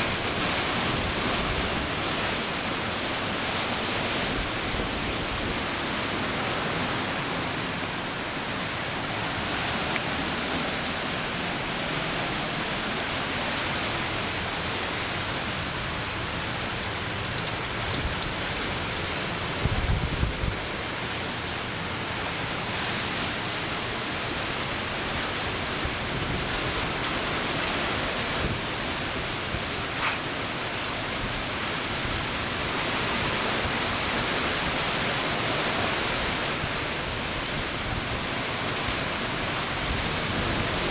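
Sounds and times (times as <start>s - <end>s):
wind and rain rushing: 0.0s - 40.9s
wind gust buffeting microphone: 14.8s - 21.0s.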